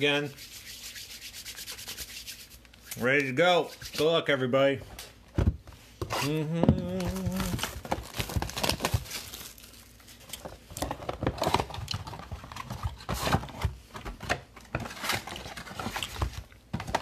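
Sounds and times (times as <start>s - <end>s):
packaging clicking and crinkling: 6.9s - 17.0s
wrapper tearing: 7.0s - 10.4s.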